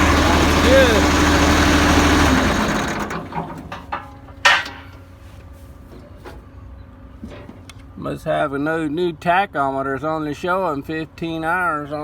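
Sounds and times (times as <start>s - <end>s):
tractor engine running: 0.0s - 5.1s.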